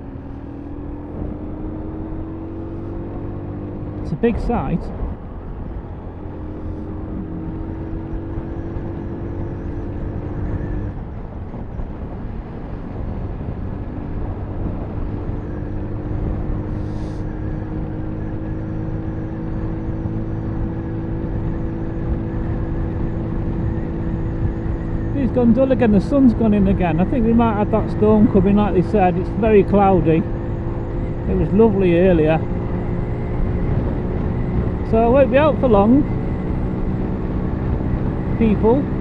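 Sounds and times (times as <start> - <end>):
motorcycle engine running: 0.0 - 12.1, 13.6 - 39.0
wind and road noise: 0.0 - 39.0.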